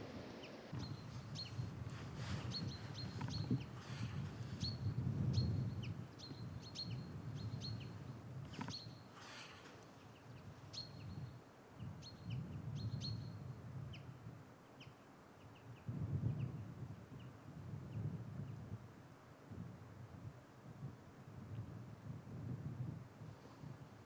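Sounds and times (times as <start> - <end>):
small bird chirping: 0.4 - 11.4.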